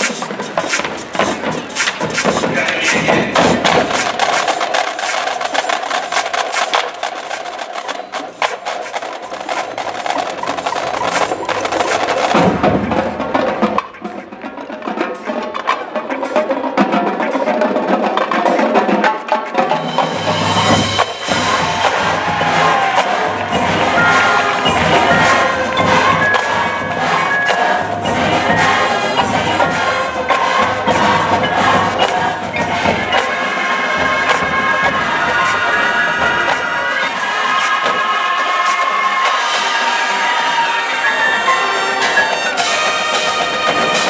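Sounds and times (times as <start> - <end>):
sharp percussion clicks: 0.0 - 17.6
marching band playing: 0.0 - 44.0.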